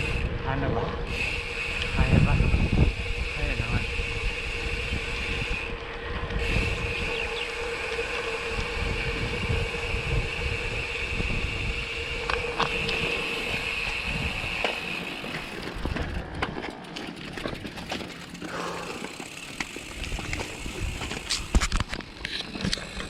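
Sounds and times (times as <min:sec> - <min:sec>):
wind rumble: 0:00.0 - 0:22.2
bicycle road noise: 0:00.0 - 0:23.0
steady high whine: 0:00.0 - 0:23.0.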